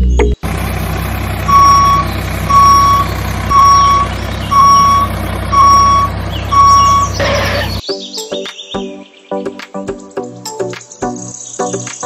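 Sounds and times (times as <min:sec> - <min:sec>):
low engine hum: 0:00.4 - 0:07.8
reversing alarm beeping: 0:00.4 - 0:07.8.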